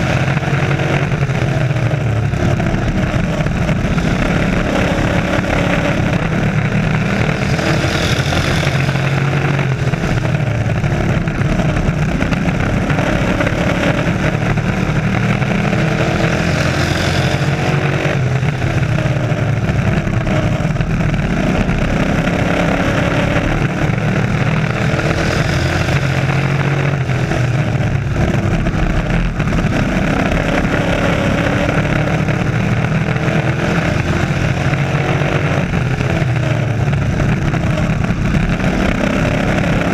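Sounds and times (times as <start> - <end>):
race truck engines: 0.0 - 39.9.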